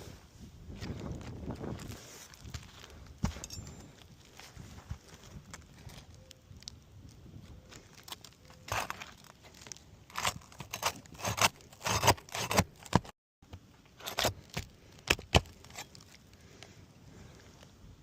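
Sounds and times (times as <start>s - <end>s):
shingles scraping and crinkling: 7.7s - 13.1s, 13.9s - 16.5s.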